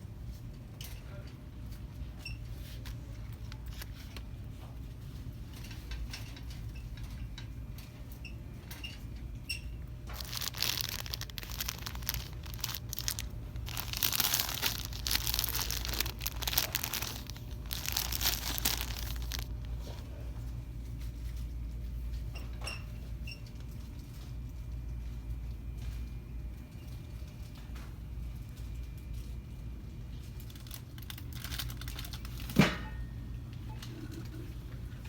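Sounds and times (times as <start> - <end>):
plastic crinkling: 2.8 - 4.2, 10.0 - 20.0, 30.4 - 32.5
steady low hum: 9.2 - 22.3.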